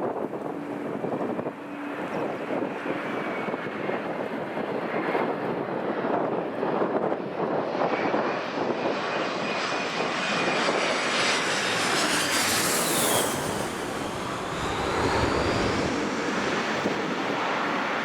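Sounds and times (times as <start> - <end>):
airliner engines passing: 0.0 - 18.0
wind buffeting microphone: 0.0 - 18.0
thin engine whine: 9.7 - 17.7.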